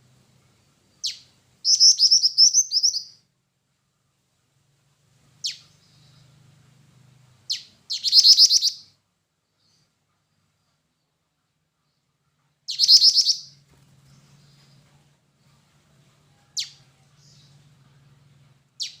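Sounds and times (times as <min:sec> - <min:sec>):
faint low hum: 0:00.0 - 0:19.0
bird calling with rapid trill: 0:01.0 - 0:03.2, 0:05.4 - 0:06.2, 0:07.5 - 0:08.9, 0:12.7 - 0:13.6, 0:18.8 - 0:19.0.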